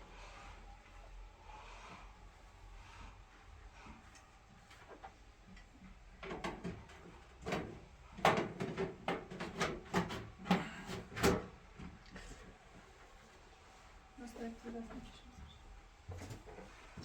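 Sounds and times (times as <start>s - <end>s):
sharp knocks and clatters: 6.2s - 11.4s.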